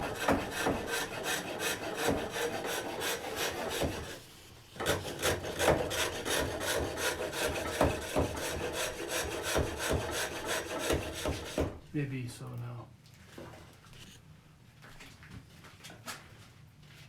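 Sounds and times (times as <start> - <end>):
tool scraping wood on lathe: 0.0 - 4.2, 4.8 - 11.8.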